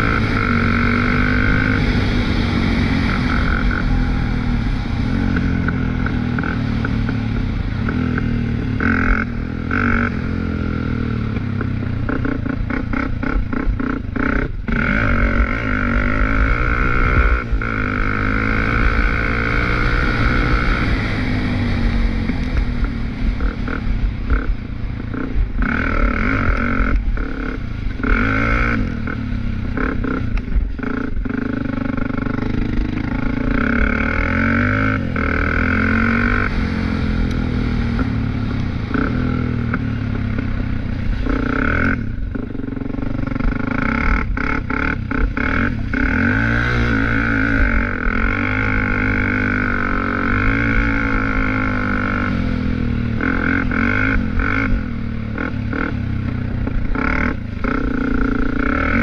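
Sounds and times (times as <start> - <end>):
small engine revving: 43.0 - 59.0.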